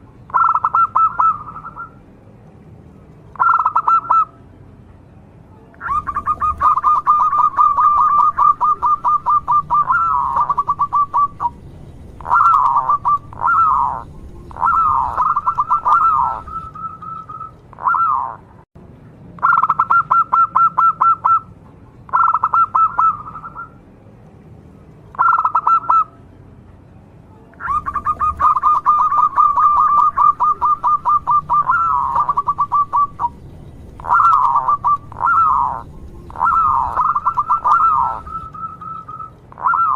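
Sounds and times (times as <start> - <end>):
dove cooing rapidly: 0.3 - 1.9, 3.4 - 4.3, 5.8 - 11.6, 12.2 - 18.5, 22.1 - 23.7, 25.2 - 26.1, 27.6 - 33.4, 34.0 - 39.9.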